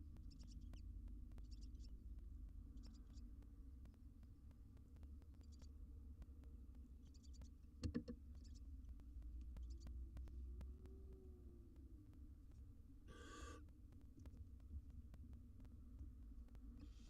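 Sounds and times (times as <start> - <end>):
low hum: 8.2 - 17.0
owl chicks chittering: 13.1 - 13.6.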